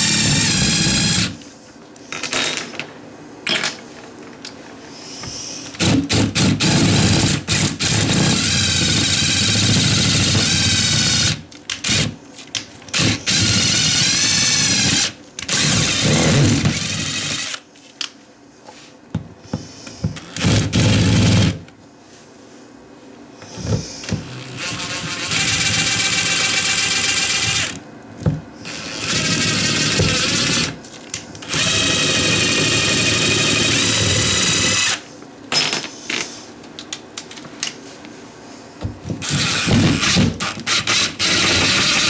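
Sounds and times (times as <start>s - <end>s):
cordless drill driving screws: 0.0s - 1.4s, 5.8s - 12.1s, 12.9s - 17.6s, 20.2s - 21.6s, 24.0s - 27.8s, 28.7s - 30.8s, 31.4s - 35.0s, 39.2s - 42.0s.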